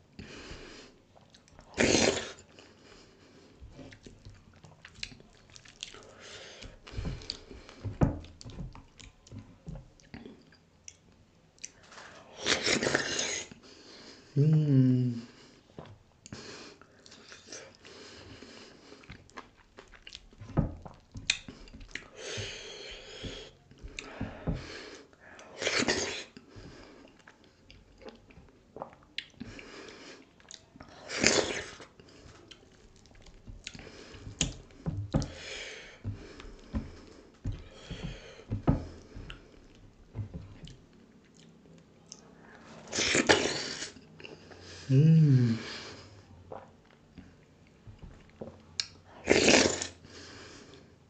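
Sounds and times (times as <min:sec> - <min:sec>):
wet chewing and mouth smacking: 0:01.1 - 0:02.6, 0:03.7 - 0:11.9, 0:18.8 - 0:24.2, 0:25.6 - 0:42.3.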